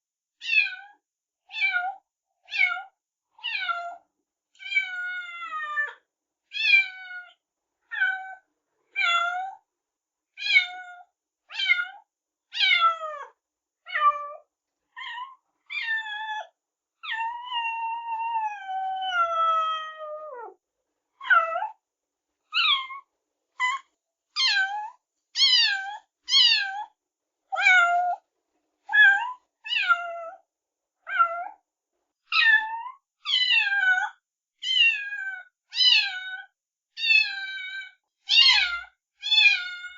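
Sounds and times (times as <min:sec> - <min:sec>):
cat meowing: 0:00.4 - 0:04.0, 0:04.6 - 0:09.6, 0:10.4 - 0:12.0, 0:12.6 - 0:20.6, 0:21.2 - 0:21.8, 0:22.5 - 0:27.0, 0:27.6 - 0:28.2, 0:28.9 - 0:30.4, 0:31.1 - 0:31.6, 0:32.3 - 0:39.9.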